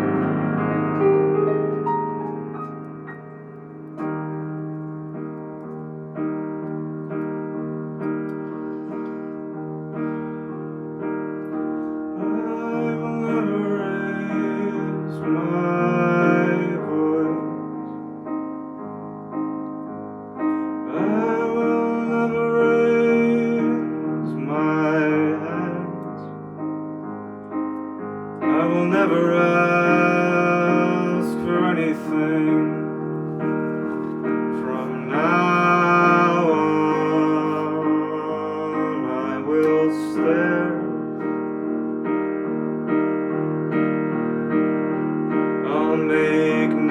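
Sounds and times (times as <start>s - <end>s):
piano chords: 0.0s - 46.9s
person singing: 12.2s - 18.0s, 20.7s - 26.4s, 28.4s - 33.0s, 34.0s - 41.4s, 45.6s - 46.9s.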